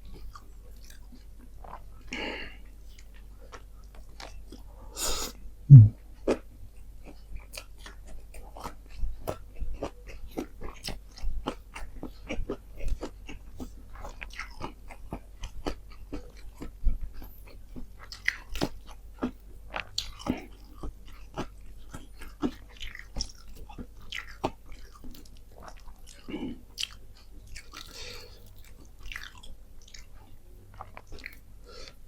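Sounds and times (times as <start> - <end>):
person chewing crunchy food: 0.1 - 6.4, 7.0 - 32.0.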